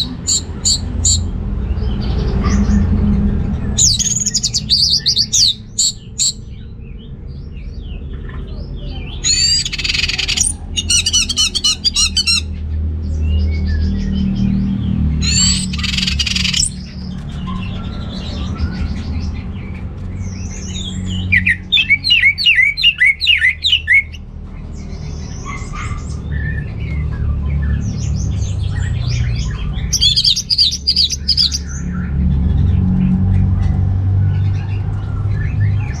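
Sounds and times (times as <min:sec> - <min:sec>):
thrush singing: 0:09.2 - 0:12.5, 0:15.2 - 0:16.8, 0:20.8 - 0:24.2.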